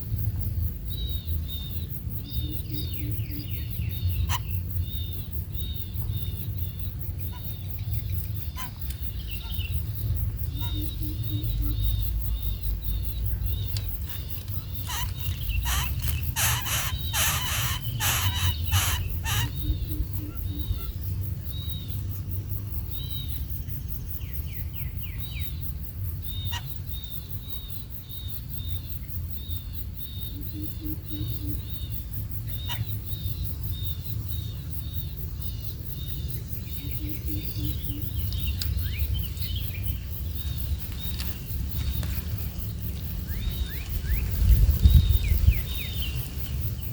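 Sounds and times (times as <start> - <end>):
young bird cheeping: 13.6 - 20.9
scratchy clicks: 13.7 - 19.6.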